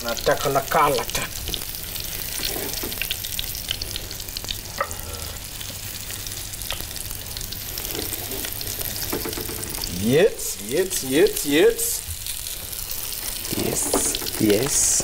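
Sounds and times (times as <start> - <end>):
food sizzling: 0.0 - 15.0
small crackles: 1.0 - 4.6, 5.6 - 10.0, 12.0 - 15.0.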